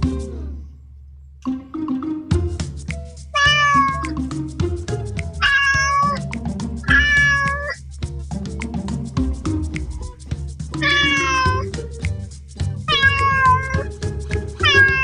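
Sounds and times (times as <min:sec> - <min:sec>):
background music with steady beat: 0:00.0 - 0:00.8, 0:01.4 - 0:15.0
kitten meowing: 0:03.4 - 0:04.1, 0:05.4 - 0:06.2, 0:06.8 - 0:07.8, 0:10.8 - 0:11.7, 0:12.9 - 0:13.8, 0:14.6 - 0:15.0.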